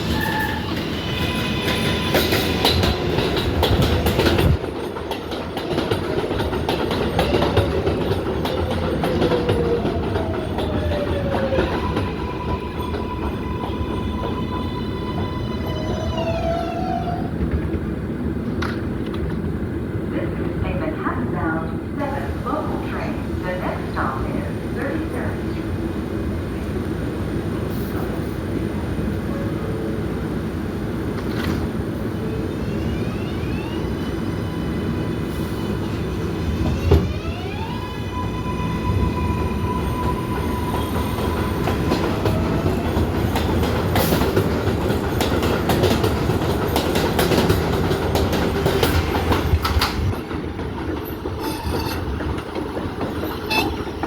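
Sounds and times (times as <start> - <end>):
subway train rumble: 0.0 - 54.0
wheels clicking over rail joints: 2.3 - 14.5, 41.2 - 54.0.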